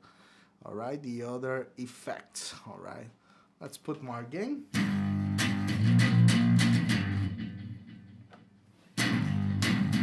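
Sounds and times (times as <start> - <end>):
electric guitar strumming chords: 4.8 - 8.3, 9.0 - 10.0.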